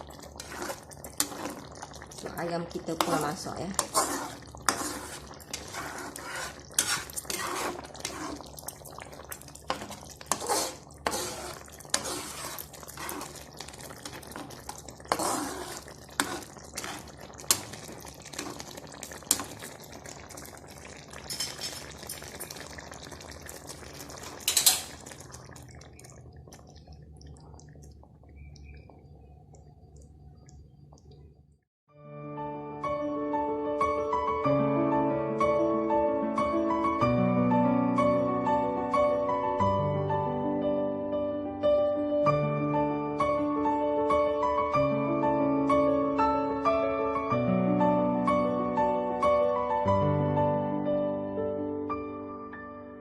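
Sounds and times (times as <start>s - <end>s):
thick gravy sloshing: 0.0s - 29.0s
spoon scraping a pot: 0.2s - 1.7s, 3.0s - 8.8s, 9.6s - 18.7s, 21.2s - 22.2s, 24.2s - 25.2s.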